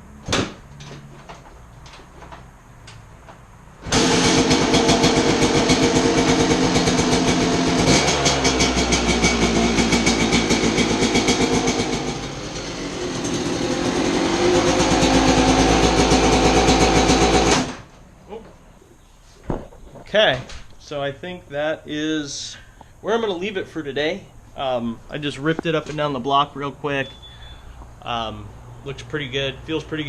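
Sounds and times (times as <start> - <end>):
two-stroke motorcycle engine running: 3.9 - 17.7.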